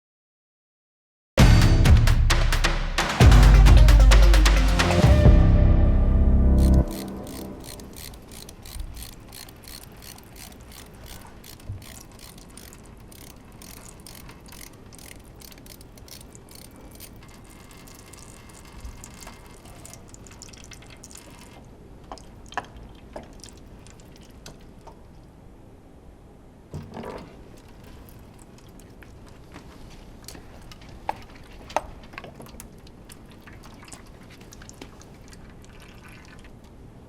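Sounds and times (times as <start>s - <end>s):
ratchet wrench clicking: 6.6s - 18.6s.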